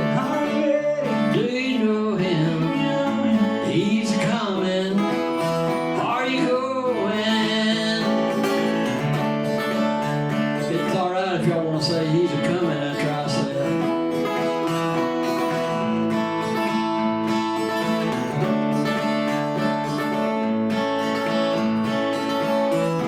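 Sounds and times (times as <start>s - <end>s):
man singing: 0.0s - 9.2s, 10.5s - 14.4s
acoustic guitar: 0.0s - 23.0s.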